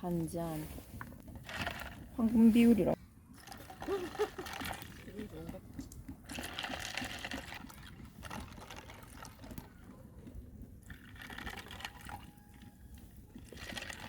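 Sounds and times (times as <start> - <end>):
liquid pouring into a cup: 3.4 - 5.4, 6.3 - 10.0, 10.8 - 14.0.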